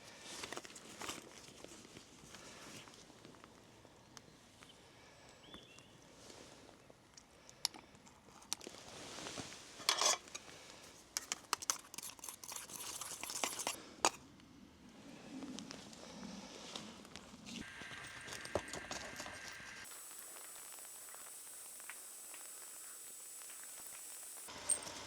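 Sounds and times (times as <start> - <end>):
crunching and rustling: 0.2 - 3.4.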